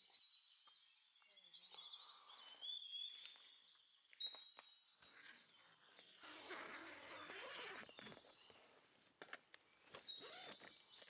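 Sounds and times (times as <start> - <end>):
birds chirping and whistling: 9.8 - 11.0.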